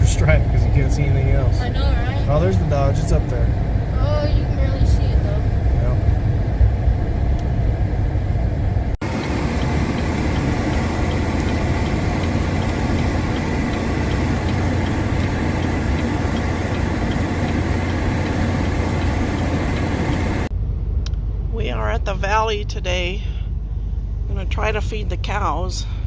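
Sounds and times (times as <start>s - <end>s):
vehicle engine idling: 0.0s - 6.1s, 8.3s - 20.5s.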